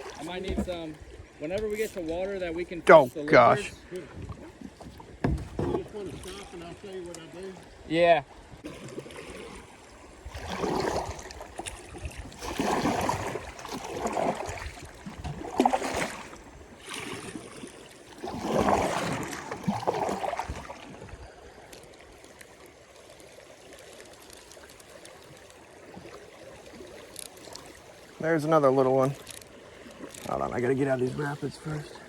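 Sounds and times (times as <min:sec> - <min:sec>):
water sloshing: 0:00.0 - 0:32.0
river water rushing: 0:07.8 - 0:32.0.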